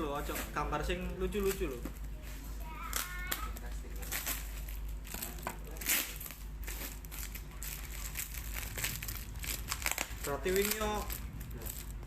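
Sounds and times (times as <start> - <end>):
packaging rustling and crackling: 2.9 - 12.0.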